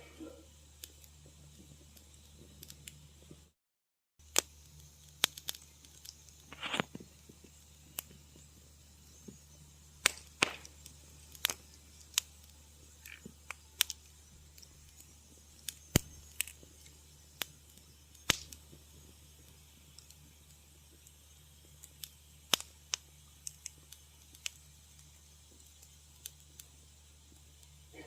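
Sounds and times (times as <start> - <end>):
faint low hum: 0.0 - 3.6
wood fire crackling: 0.0 - 3.6, 4.2 - 28.0.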